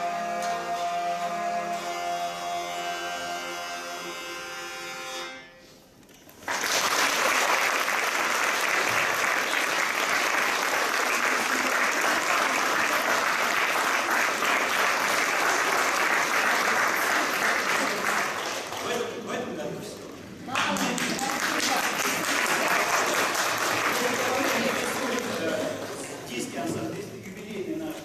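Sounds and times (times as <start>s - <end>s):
audience applause: 6.4s - 19.6s, 20.5s - 26.7s.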